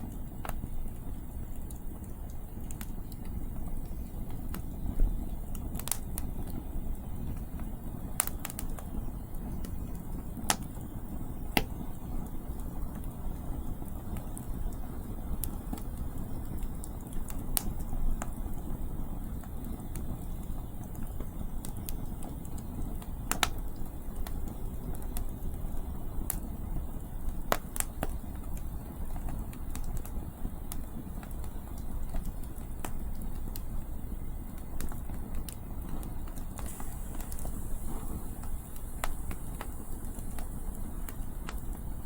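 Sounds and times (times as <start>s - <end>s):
campfire crackling and popping: 0.0s - 42.0s.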